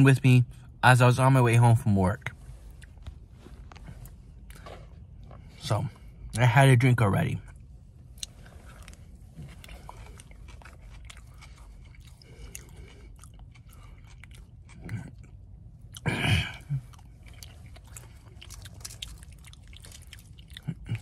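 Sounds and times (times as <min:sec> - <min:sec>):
close-up chewing: 0:07.5 - 0:21.0.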